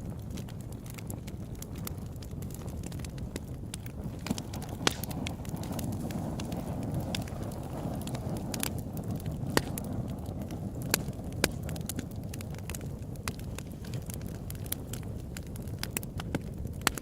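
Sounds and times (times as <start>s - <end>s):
campfire flames rushing: 0.0s - 17.0s
fire crackling and popping: 0.0s - 17.0s.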